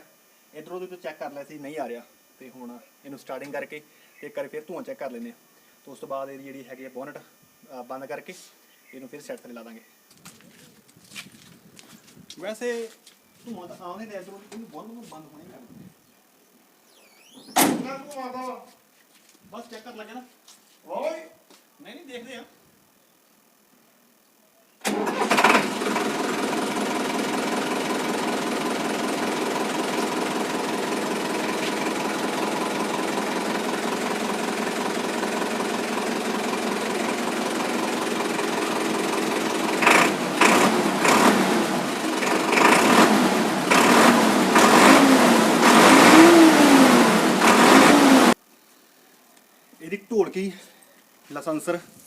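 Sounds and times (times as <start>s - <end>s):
tractor diesel engine revving: 24.9s - 48.4s.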